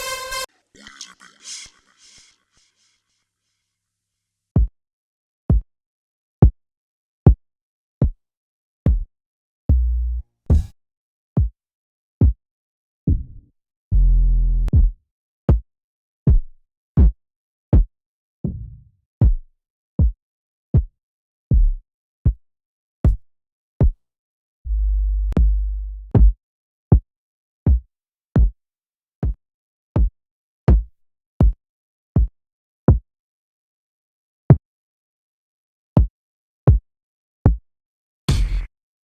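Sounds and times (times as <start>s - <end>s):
electronic kick drums: 8.9s - 9.1s, 14.7s - 15.6s, 26.2s - 27.0s, 30.7s - 31.6s
pitched bass hits: 38.3s - 38.7s.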